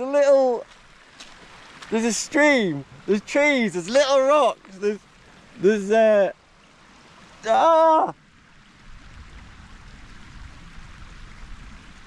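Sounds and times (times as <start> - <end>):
rain hissing on a jacket: 0.0 - 12.0
man's wordless vocal sound: 7.4 - 8.2.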